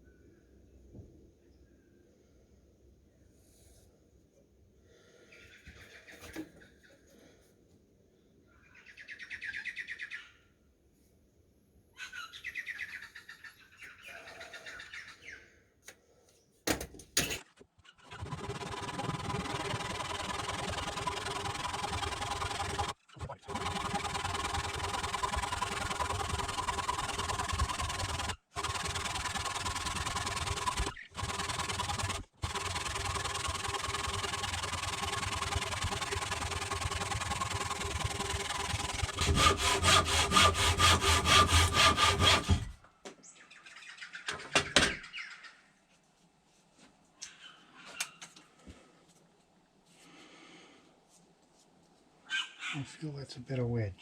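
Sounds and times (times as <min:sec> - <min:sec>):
chainsaw cutting wood: 0:18.1 - 0:42.8.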